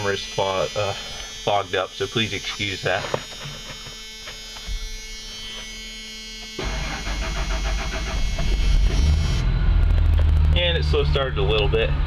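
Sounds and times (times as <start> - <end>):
low steady hum: 0.0 - 12.0
starter cranking engine: 6.6 - 8.9
van engine running: 6.6 - 12.0.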